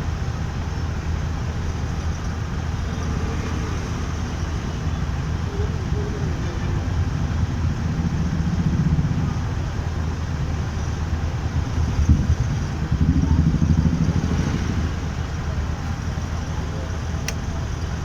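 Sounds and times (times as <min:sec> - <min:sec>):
motorcycle engine and road rumble: 0:00.0 - 0:18.0.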